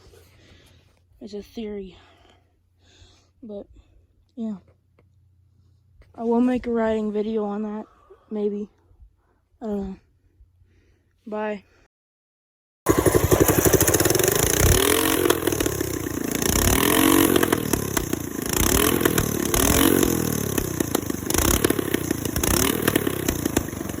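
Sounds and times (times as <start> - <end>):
small engine revving: 12.9 - 24.0.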